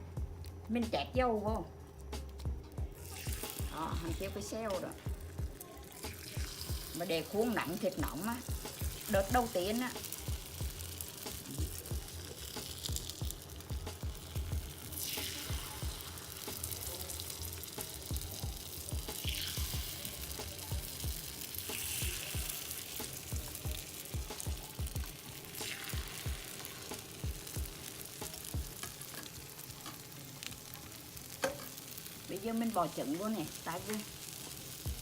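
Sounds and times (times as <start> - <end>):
batter sizzling in hot pan: 0.0 - 35.0
utensils knocking on pan: 17.7 - 30.1, 31.4 - 31.9.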